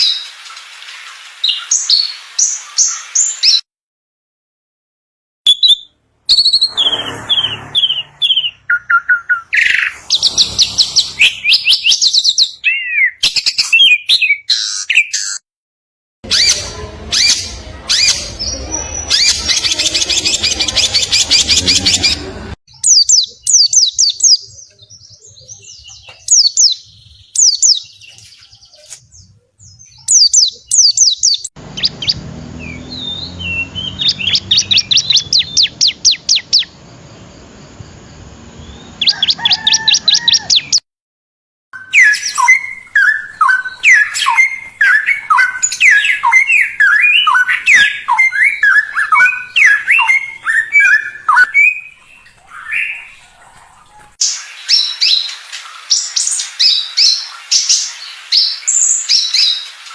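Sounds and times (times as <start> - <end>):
bird whistling up and down: 5.5 - 15.4, 41.8 - 53.2
songbirds trilling: 16.3 - 40.8, 41.8 - 59.9.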